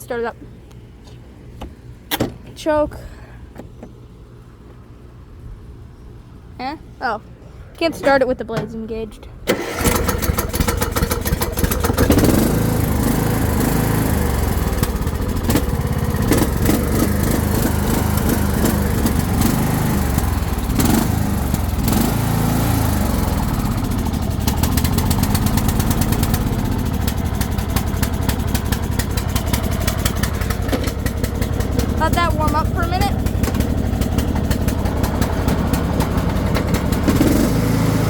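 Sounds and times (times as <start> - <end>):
small mower engine running: 9.5 - 38.0.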